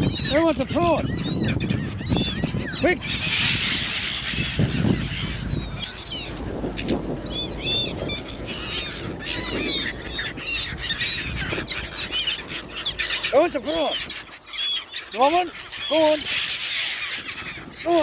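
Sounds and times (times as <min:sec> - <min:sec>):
gulls squawking: 0:00.0 - 0:18.0.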